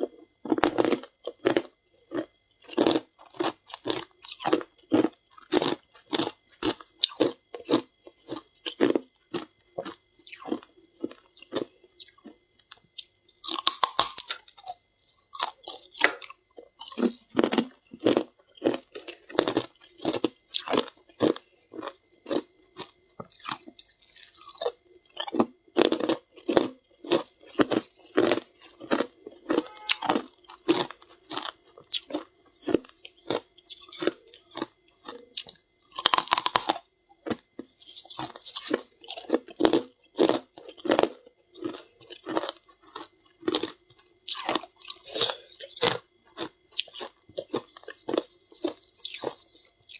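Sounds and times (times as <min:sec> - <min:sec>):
person chewing crunchy ice: 0:00.0 - 0:49.9.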